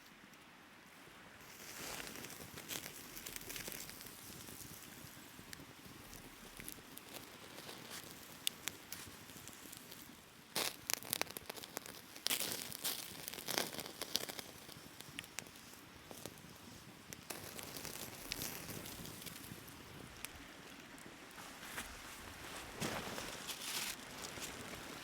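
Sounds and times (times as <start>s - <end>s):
faint steady hiss: 0.0s - 25.0s
dry material crinkling and tearing: 1.4s - 16.6s, 17.2s - 25.0s.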